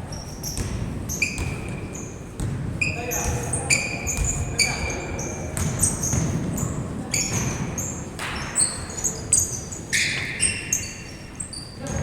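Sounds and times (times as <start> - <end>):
large hall hum: 0.0 - 12.0
sneakers squeaking on court: 0.0 - 12.0.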